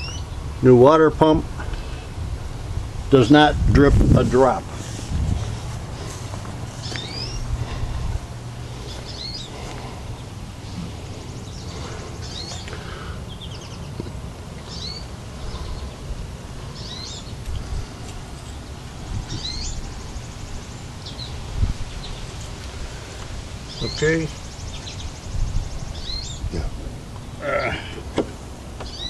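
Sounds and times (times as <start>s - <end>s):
songbird chirping: 0.0s - 0.7s, 6.0s - 8.0s, 8.6s - 29.0s
steady low rumble: 0.0s - 28.8s.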